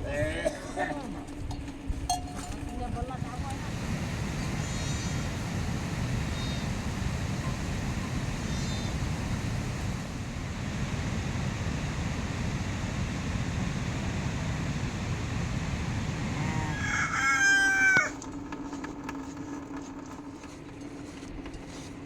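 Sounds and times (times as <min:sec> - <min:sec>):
rooster crowing: 0:16.3 - 0:18.2.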